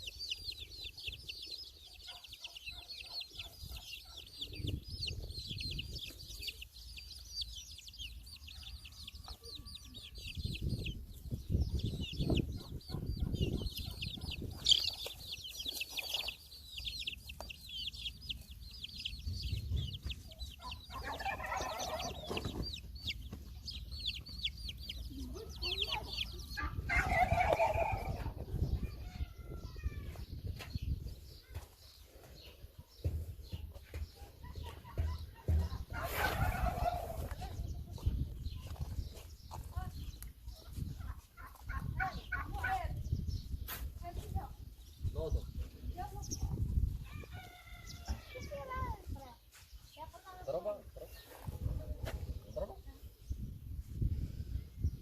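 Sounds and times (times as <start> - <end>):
chickens clucking: 0.0 - 54.2
small birds chirping: 0.0 - 55.0.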